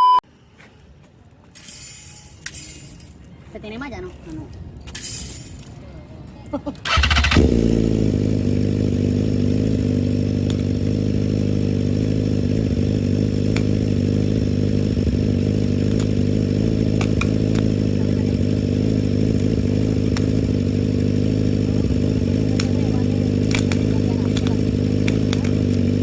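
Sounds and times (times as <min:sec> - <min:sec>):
engine running steadily: 0:06.7 - 0:26.0
sharp clicks: 0:10.4 - 0:10.8, 0:13.5 - 0:13.9, 0:15.8 - 0:16.2, 0:17.0 - 0:17.8, 0:19.3 - 0:20.5, 0:22.6 - 0:26.0.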